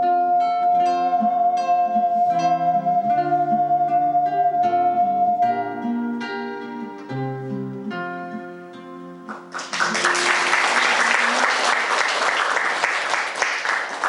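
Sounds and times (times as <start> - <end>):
ocarina playing: 0.0 - 10.8
audience applauding: 9.3 - 14.0.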